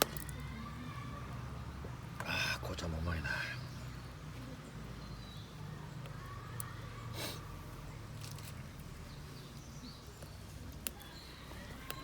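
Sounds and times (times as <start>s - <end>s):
wood fire crackling: 6.0s - 12.0s.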